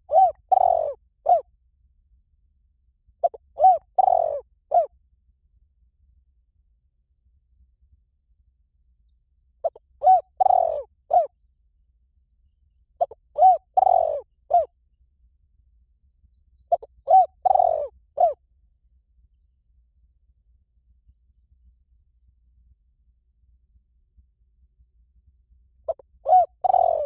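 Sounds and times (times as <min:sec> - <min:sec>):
dove cooing: 0:00.0 - 0:01.4, 0:03.2 - 0:04.9, 0:09.6 - 0:11.3, 0:13.0 - 0:14.7, 0:16.7 - 0:18.4, 0:25.9 - 0:27.0.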